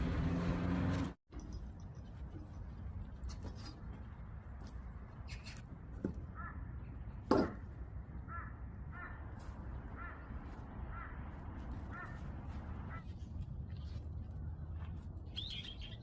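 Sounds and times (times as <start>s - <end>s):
birds calling: 8.1s - 11.2s.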